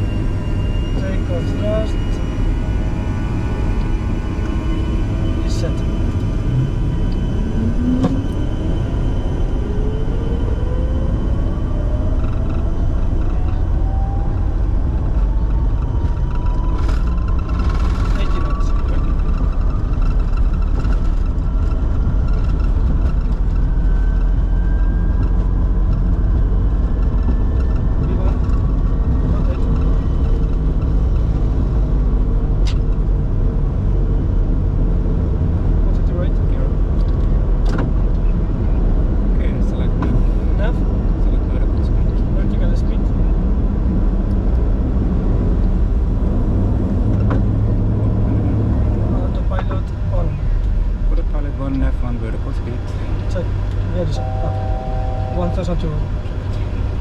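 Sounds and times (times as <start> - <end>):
air rushing around cockpit: 0.0 - 32.0
faint rising engine whine: 0.0 - 57.0
jet engines low rumble: 0.0 - 57.0.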